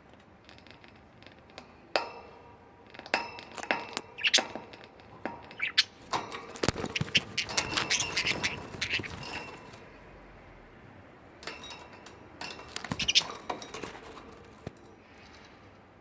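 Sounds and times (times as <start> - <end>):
budgies clicking and clinking in cage: 0.1 - 15.7
budgie chirps: 6.7 - 9.4.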